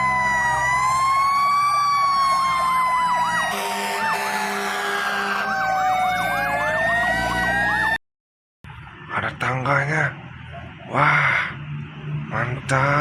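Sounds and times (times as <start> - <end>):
toy fire truck siren: 0.0 - 8.0.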